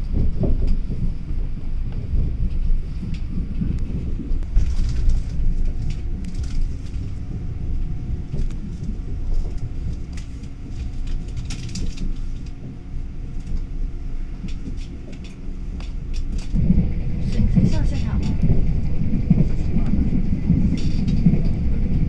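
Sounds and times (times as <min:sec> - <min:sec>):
faint steady hum: 0:00.0 - 0:22.0
train rumble inside carriage: 0:00.0 - 0:22.0
light clicks and rattles: 0:08.3 - 0:13.7, 0:14.4 - 0:16.6.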